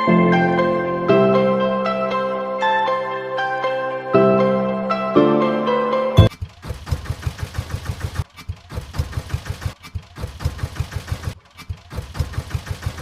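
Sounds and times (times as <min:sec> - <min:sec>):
small engine idling: 0:08.8 - 0:13.0.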